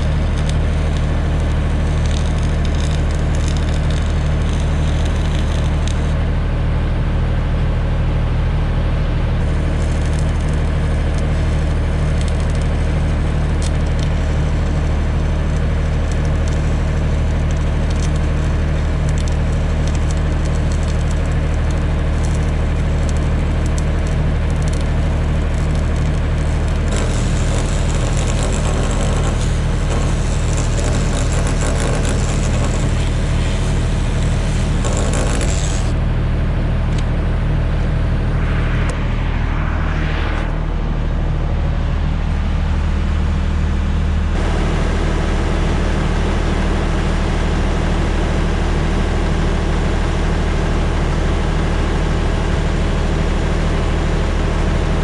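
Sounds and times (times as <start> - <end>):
arc welding crackle: 0.0 - 6.2, 9.4 - 36.0
engine hum: 0.0 - 45.8.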